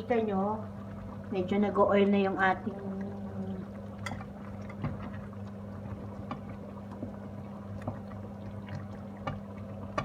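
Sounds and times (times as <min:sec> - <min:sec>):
sauce bubbles popping: 0:02.6 - 0:10.0.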